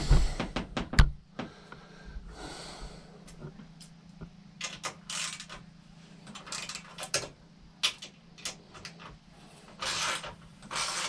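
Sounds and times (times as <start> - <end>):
low steady hum: 0.0 - 11.0
tools and metal parts clinking: 6.2 - 9.0.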